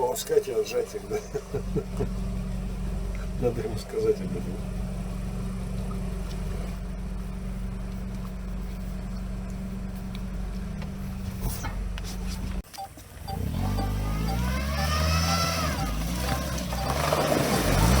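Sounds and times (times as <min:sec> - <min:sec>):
atv engine idling: 0:00.0 - 0:18.0
engine revving up: 0:13.2 - 0:18.0.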